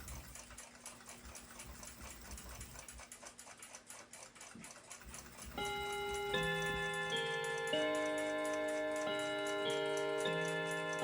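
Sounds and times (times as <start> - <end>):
clock-like ticking: 0.0 - 11.0
background music of held chords: 5.6 - 11.0.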